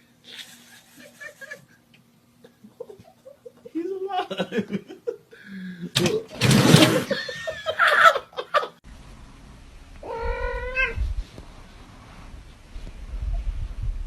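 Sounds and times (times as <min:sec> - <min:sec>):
cat caterwauling: 0:10.0 - 0:11.0
cat meowing: 0:10.0 - 0:11.0.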